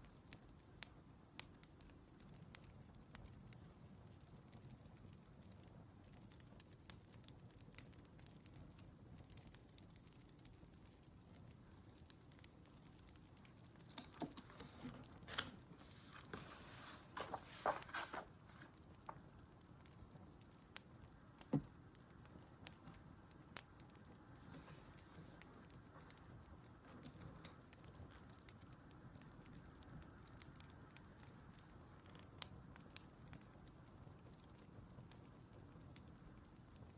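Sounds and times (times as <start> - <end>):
wood fire crackling: 0.0 - 36.9
rustling and small taps: 13.8 - 19.3.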